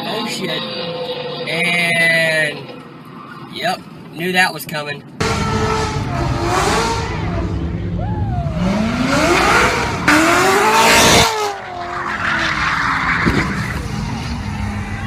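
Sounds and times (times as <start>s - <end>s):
tyres squealing and skidding: 0.0s - 3.9s, 10.1s - 15.0s
car engine revving: 5.2s - 15.0s.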